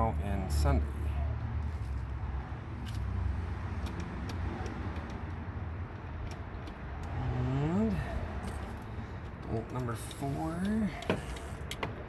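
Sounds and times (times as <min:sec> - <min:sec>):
wrench metallic clicks: 0:03.8 - 0:07.2.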